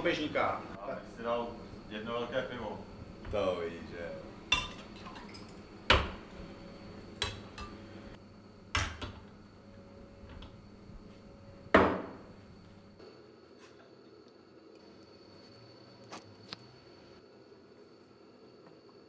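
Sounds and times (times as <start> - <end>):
glasses knocking on wooden counter: 11.8 - 12.2.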